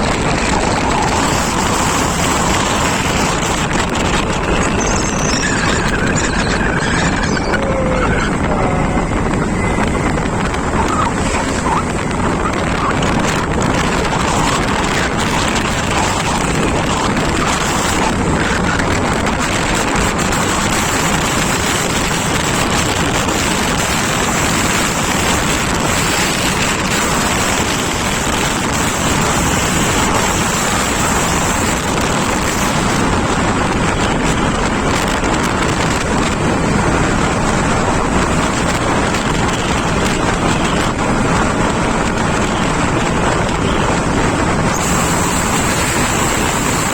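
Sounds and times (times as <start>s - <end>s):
scooter engine and road noise: 0.0s - 46.9s
wind buffeting microphone: 0.0s - 46.9s.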